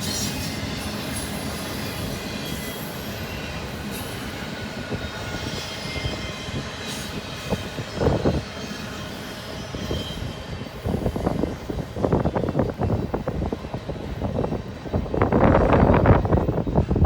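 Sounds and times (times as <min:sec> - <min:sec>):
faint high wheel squeal: 0:00.0 - 0:13.0
irregular train rumbles: 0:00.0 - 0:17.0
train railcars rolling on rails: 0:00.0 - 0:17.0.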